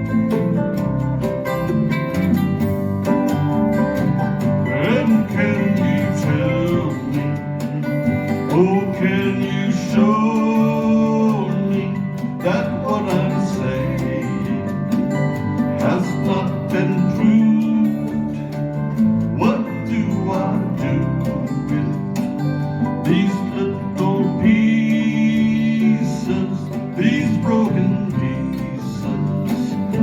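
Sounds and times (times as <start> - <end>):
melody line: 0.0 - 11.8
bass: 0.0 - 30.0
strummed acoustic guitars: 0.0 - 30.0.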